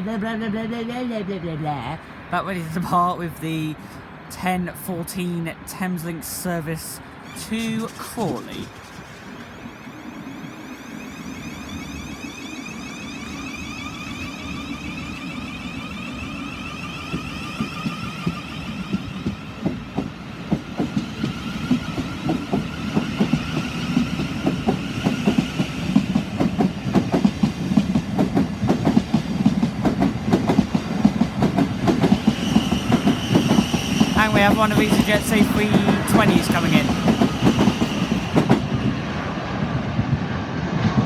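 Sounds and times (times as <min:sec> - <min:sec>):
rising traction motor whine: 0:07.2 - 0:28.6, 0:30.1 - 0:39.9
wheel clicks over rail joints: 0:07.7 - 0:18.1.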